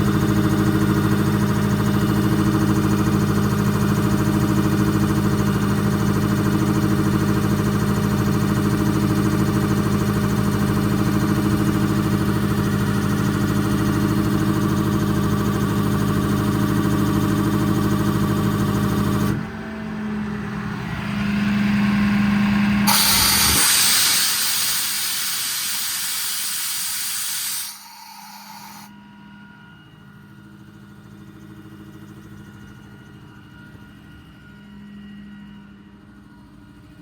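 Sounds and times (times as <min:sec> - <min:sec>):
compressed air hissing: 0:22.9 - 0:28.9
truck machine hum: 0:22.9 - 0:28.9.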